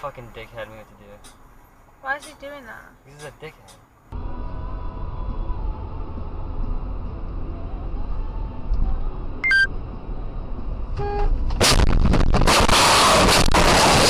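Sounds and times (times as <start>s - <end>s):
road rumble: 0.0s - 14.0s
short electronic beep: 9.4s - 9.7s
brief horn-like tone: 11.0s - 11.4s
loud crash with impacts: 11.5s - 14.0s.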